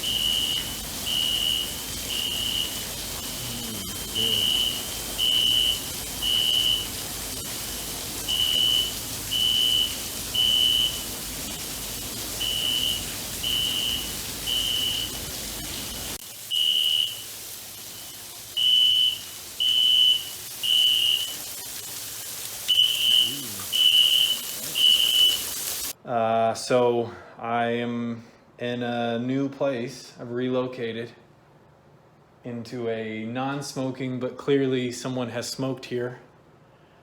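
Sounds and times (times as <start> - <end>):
fire alarm beeping: 0.0 - 17.4, 18.6 - 21.6, 22.6 - 25.9
steady hiss: 0.0 - 26.2.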